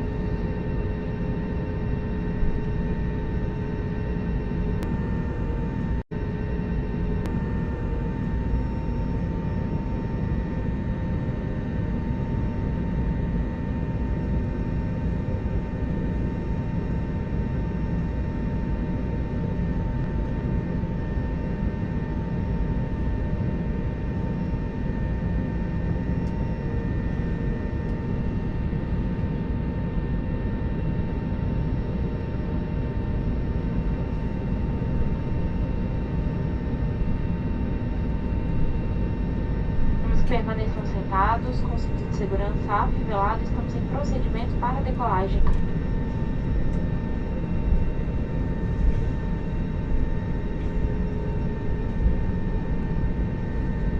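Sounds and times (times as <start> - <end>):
engine whine: 0.0 - 19.2, 33.8 - 53.9
jet airliner cabin noise: 33.7 - 53.9.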